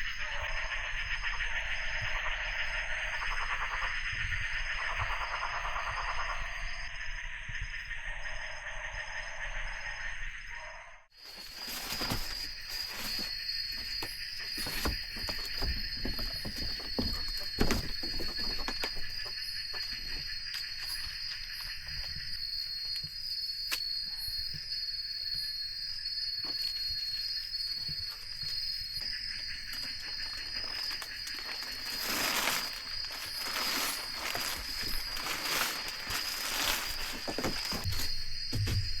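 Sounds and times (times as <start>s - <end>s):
forest insects chorus: 0.0s - 39.0s.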